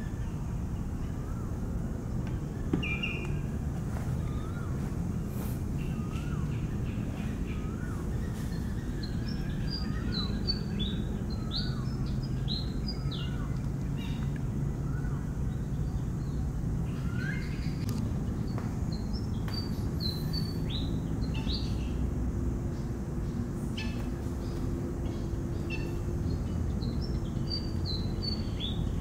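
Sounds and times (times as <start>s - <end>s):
steady low rumble: 0.0s - 20.0s
lower bird chirps: 2.3s - 22.1s, 22.7s - 29.0s.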